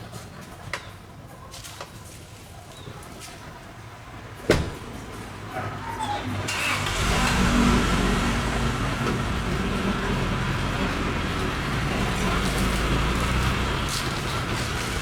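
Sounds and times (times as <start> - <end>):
low machine rumble: 6.8 - 15.0.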